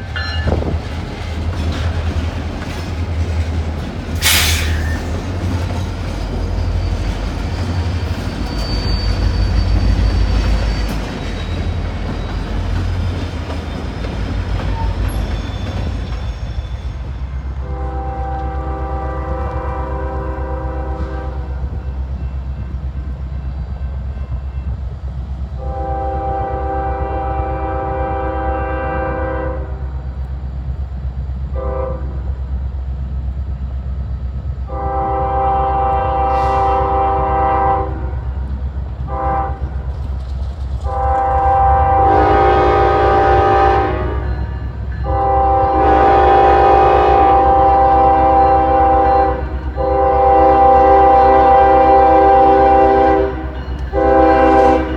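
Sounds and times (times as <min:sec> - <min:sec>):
train rumbling: 0:00.0 - 0:54.9
train air horn blasts: 0:04.2 - 0:05.2, 0:16.9 - 0:22.0, 0:25.6 - 0:30.0, 0:31.5 - 0:32.2, 0:34.7 - 0:38.4, 0:39.0 - 0:39.9, 0:40.8 - 0:54.9.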